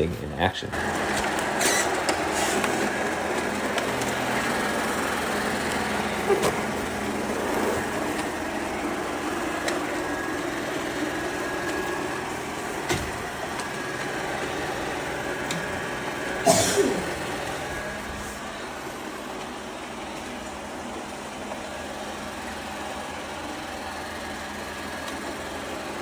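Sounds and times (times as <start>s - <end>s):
robot vacuum running: 0.0s - 26.0s.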